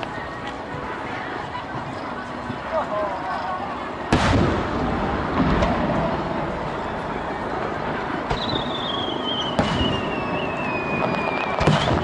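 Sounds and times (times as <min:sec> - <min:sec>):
crowd murmur: 0:00.0 - 0:12.0
thin descending whistle: 0:08.3 - 0:12.0.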